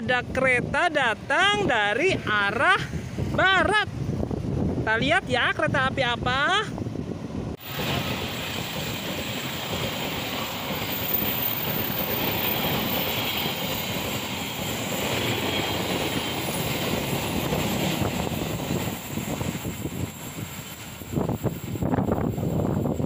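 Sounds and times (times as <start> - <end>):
train wheels rushing on rails: 7.0 - 23.0.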